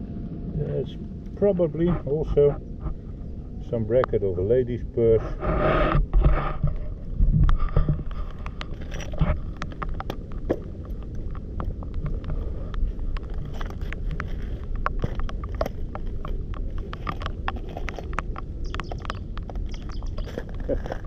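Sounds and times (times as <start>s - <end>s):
steady low rumble: 0.0s - 21.0s
sharp clicks and taps: 9.5s - 21.0s.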